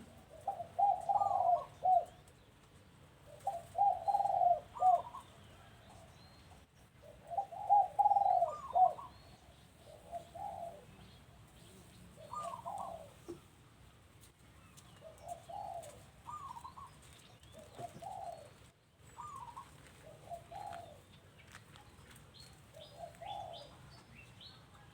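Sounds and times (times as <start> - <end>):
doves cooing: 0.0 - 2.5, 3.1 - 6.2, 7.0 - 13.4, 14.8 - 21.5, 22.7 - 24.9.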